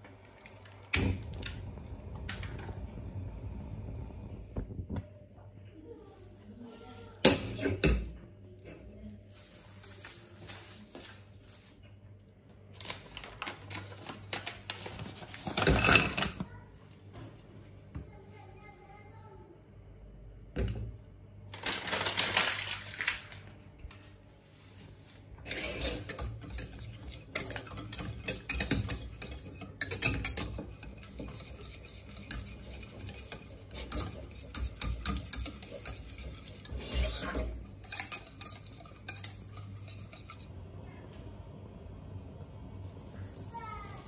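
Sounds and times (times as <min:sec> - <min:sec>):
utensil clinking against bowl: 0:25.5 - 0:40.5.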